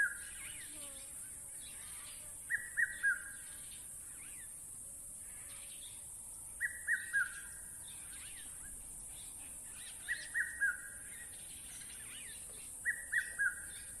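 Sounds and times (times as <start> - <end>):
faint bird chirps: 0.0 - 4.6, 5.3 - 14.0
bird whistling call: 12.9 - 13.7.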